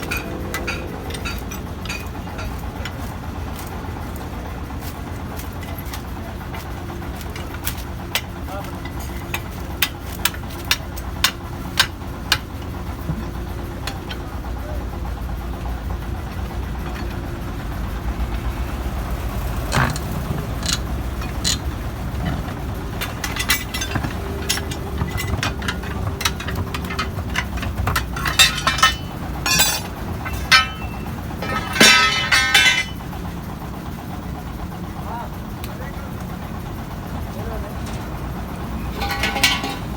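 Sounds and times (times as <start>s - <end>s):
metallic knocks and clinks: 0.0s - 3.0s, 19.7s - 33.0s, 38.9s - 39.9s
low engine hum: 0.0s - 39.9s.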